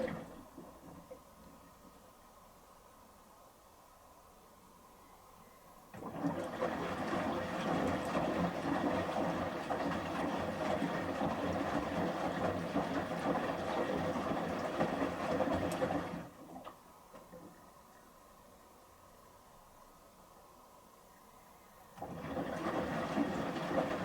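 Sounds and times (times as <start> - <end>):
clothes sloshing in water: 6.0 - 16.4.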